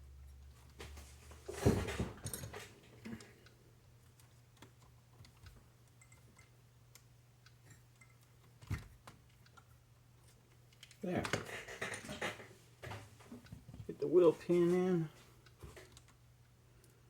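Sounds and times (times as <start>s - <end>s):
small parts clicking and rattling: 2.2s - 12.5s.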